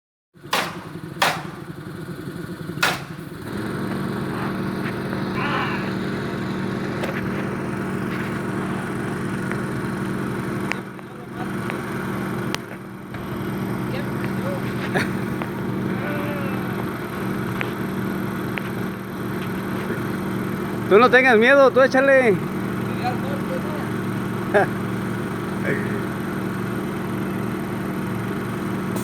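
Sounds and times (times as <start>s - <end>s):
engine running: 0.4s - 29.0s
sharp knocks: 0.5s - 1.8s, 2.8s - 3.4s.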